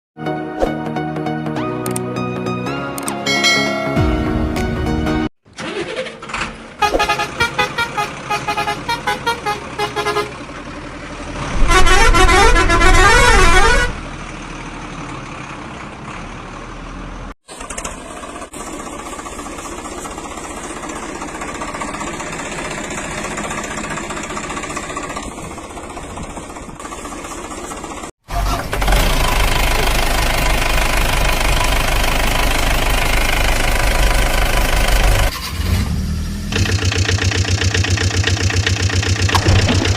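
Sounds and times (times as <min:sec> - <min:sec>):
vehicle engine running: 0:06.2 - 0:35.3, 0:36.0 - 0:39.9
loud horn blaring: 0:06.8 - 0:10.4, 0:11.4 - 0:14.0
repeated horn beeps: 0:06.8 - 0:10.4, 0:11.6 - 0:14.0.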